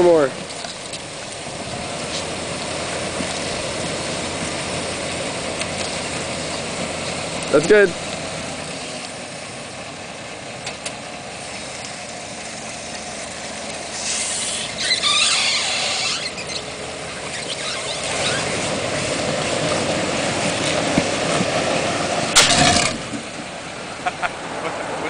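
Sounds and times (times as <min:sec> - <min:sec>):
wheel rim scraping and squealing: 0:12.7 - 0:19.7.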